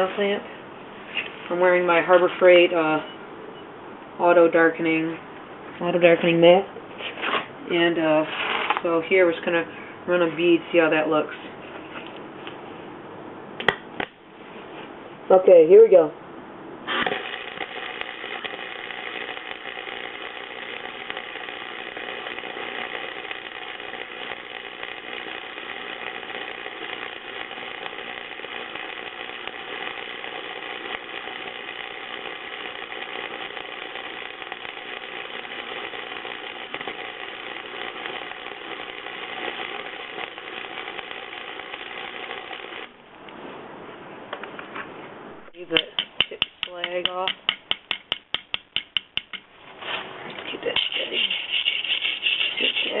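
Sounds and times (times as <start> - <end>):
welding arc hiss and crackle: 0.0 - 0.4, 16.8 - 43.0, 45.4 - 53.0.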